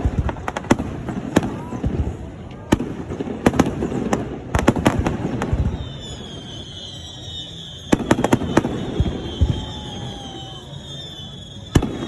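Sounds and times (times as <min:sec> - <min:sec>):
firework cracks and bangs: 0:00.0 - 0:12.0
high falling whistle: 0:05.7 - 0:12.0.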